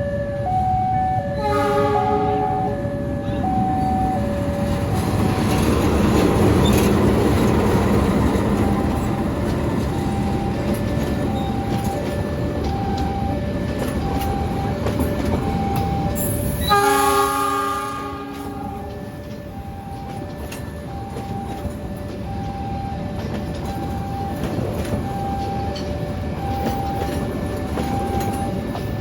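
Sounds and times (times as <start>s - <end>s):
train rumbling on rails: 0.0s - 29.0s
locomotive horn chord: 1.3s - 3.6s, 16.4s - 19.0s
two-note electronic warning signal: 9.8s - 28.6s.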